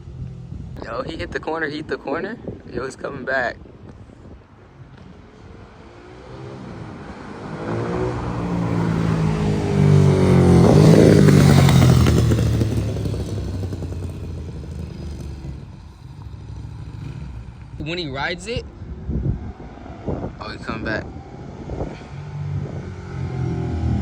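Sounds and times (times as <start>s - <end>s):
motorcycle engine passing by: 5.8s - 24.0s.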